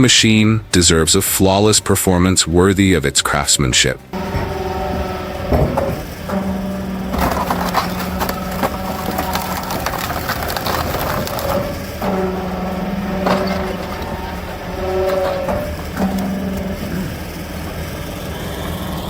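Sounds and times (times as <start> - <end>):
wood-splitting machine hum: 0.0 - 19.0
logs cracking and splintering: 4.2 - 19.0.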